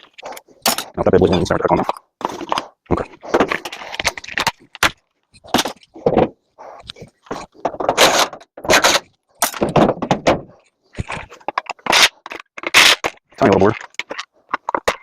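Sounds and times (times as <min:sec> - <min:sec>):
metal parts clanking and scraping: 0:00.0 - 0:02.7, 0:07.3 - 0:15.0.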